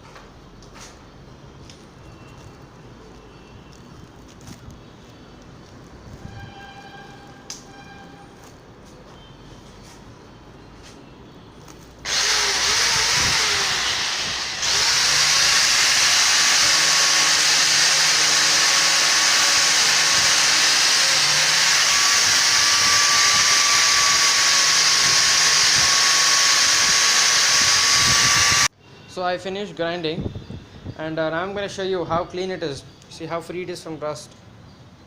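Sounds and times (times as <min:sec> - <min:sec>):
angle grinder grinding metal: 0:12.1 - 0:28.7.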